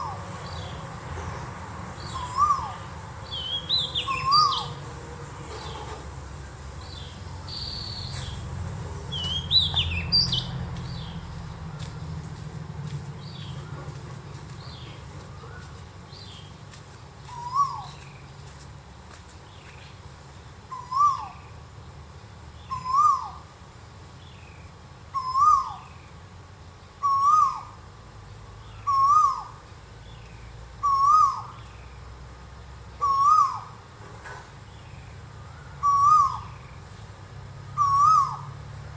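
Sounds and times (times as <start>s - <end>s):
owl calling: 0.0s - 0.8s, 2.0s - 6.0s, 17.3s - 18.1s, 20.7s - 21.6s, 22.6s - 23.5s, 25.1s - 26.0s, 27.0s - 27.8s, 28.7s - 29.6s, 30.8s - 31.8s, 33.0s - 33.8s, 35.4s - 36.8s, 37.8s - 38.6s.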